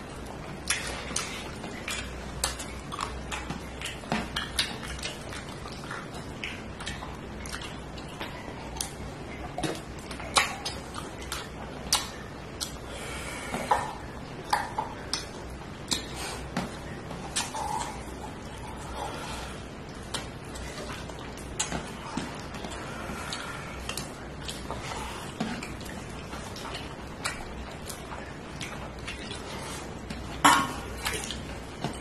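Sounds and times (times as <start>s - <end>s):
wet chewing smacks: 0.0s - 32.0s.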